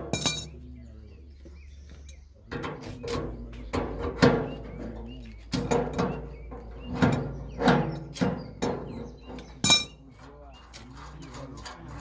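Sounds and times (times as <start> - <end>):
birds chirping faintly: 0.0 - 12.0
building work knocks and scrapes: 2.6 - 12.0.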